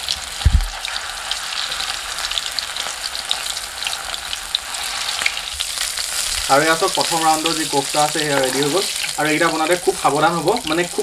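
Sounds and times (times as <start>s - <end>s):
meatballs deep-frying in oil: 0.0s - 11.0s
low thump: 0.4s - 0.8s
crackling pops: 0.4s - 0.9s.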